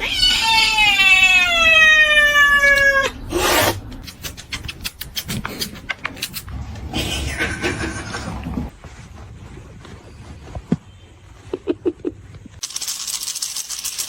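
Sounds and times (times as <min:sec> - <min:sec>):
cat yowling meow: 0:00.0 - 0:03.8.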